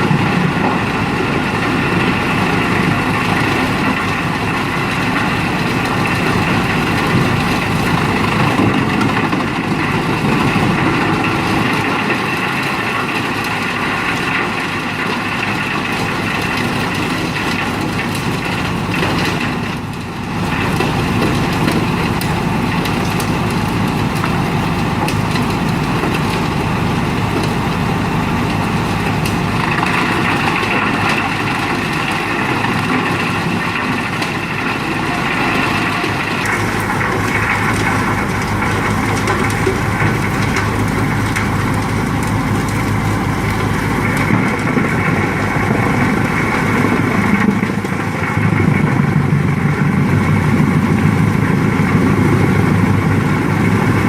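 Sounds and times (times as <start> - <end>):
wood chipper engine running: 0.0 - 54.0.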